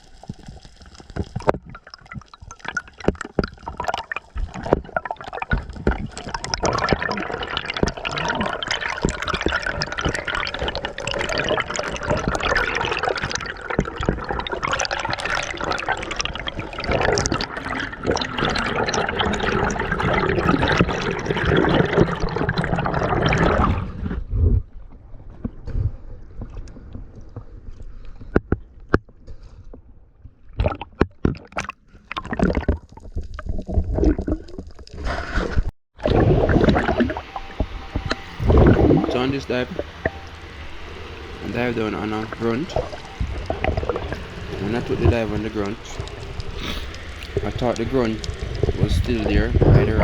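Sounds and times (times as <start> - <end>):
underwater hush: 0.0 - 23.9, 36.0 - 50.0
water sloshing and gurgling: 0.0 - 50.0.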